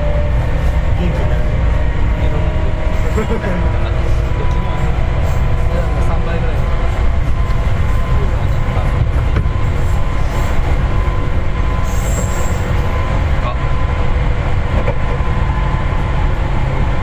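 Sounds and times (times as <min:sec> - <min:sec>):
electric train rumble: 0:00.0 - 0:17.0
high wheel squeal: 0:01.7 - 0:14.0.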